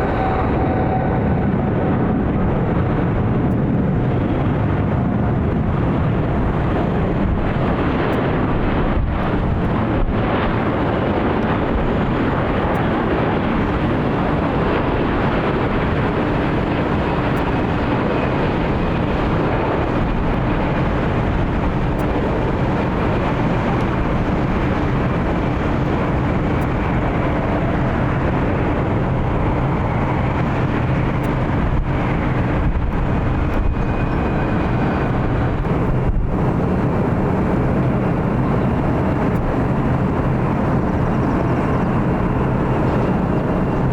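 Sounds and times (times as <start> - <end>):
jet engines rushing: 0.0 - 43.9.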